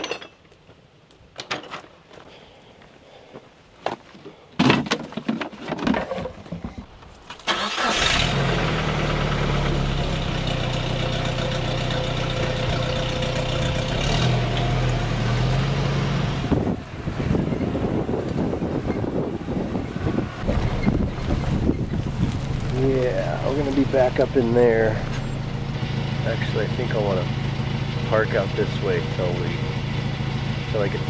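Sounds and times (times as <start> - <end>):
vehicle pulling away: 7.5 - 31.0
car engine idling: 7.6 - 15.3, 16.4 - 31.0
wind buffeting microphone: 16.4 - 24.0.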